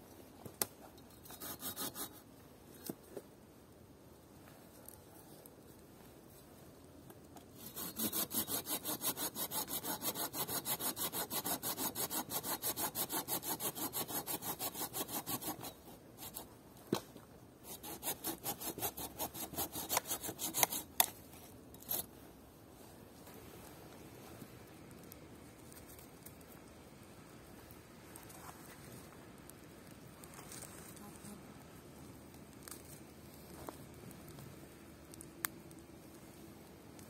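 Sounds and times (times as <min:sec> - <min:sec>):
hand saw cutting wood: 0:07.6 - 0:16.5, 0:17.6 - 0:21.1.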